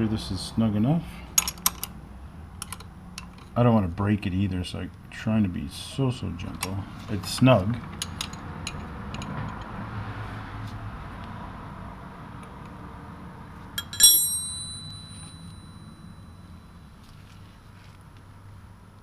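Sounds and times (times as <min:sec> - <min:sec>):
low steady hum: 0:13.5 - 0:19.0
metal tool clinking on hard surface: 0:13.8 - 0:16.3.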